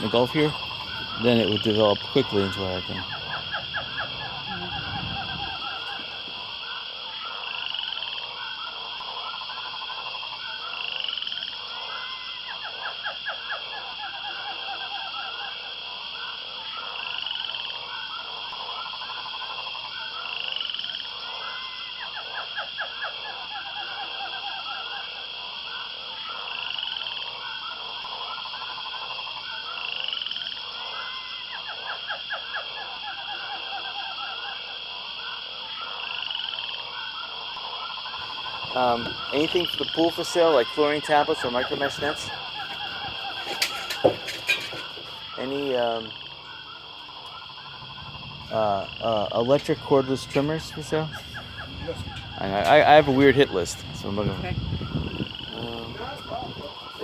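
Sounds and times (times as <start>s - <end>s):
animals croaking: 0.0s - 6.6s, 38.2s - 57.0s
steady high drone: 38.2s - 54.2s.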